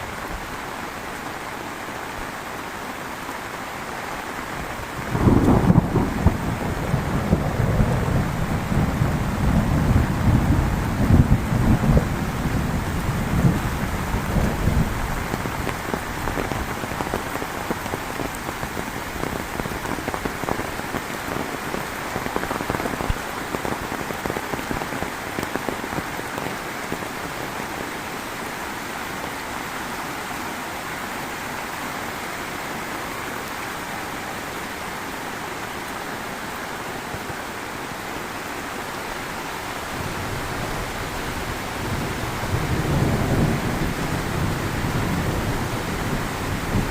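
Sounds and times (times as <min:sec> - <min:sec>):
heavy rain falling: 0:00.0 - 0:46.9
thunder rumble: 0:05.1 - 0:20.2, 0:40.0 - 0:46.9.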